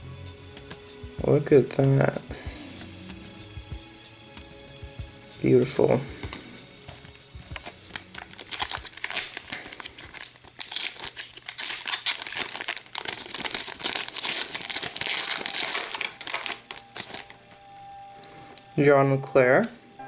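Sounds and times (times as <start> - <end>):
wrapper tearing and crinkling: 7.0 - 17.6.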